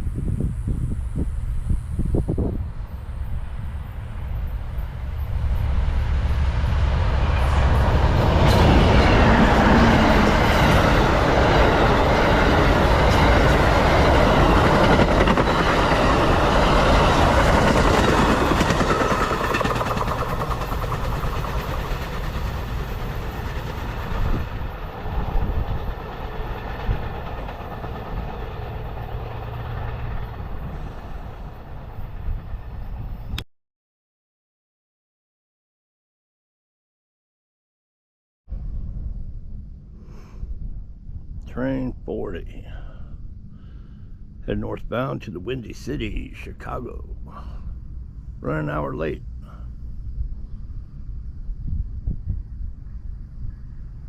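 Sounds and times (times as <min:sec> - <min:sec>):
train passing at speed: 0:00.0 - 0:33.4, 0:42.2 - 0:54.0
train wheels clacking: 0:07.3 - 0:24.8.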